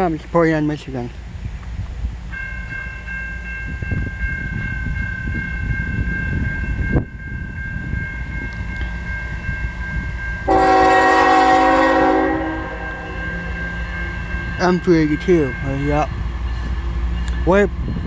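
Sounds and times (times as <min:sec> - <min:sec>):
freight locomotive rumbling: 0:00.0 - 0:18.0
locomotive air horn blast: 0:10.5 - 0:13.2.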